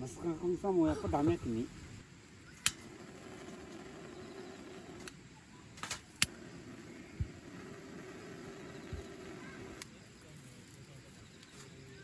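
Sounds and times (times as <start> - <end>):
outdoor background rush: 0.0 - 12.0
sharp clicks: 2.6 - 3.0.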